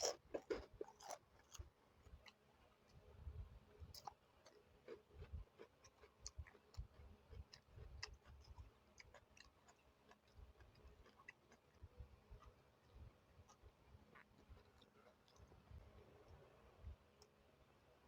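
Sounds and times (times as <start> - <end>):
person chewing: 0.0 - 2.4, 3.9 - 12.6, 13.4 - 15.6.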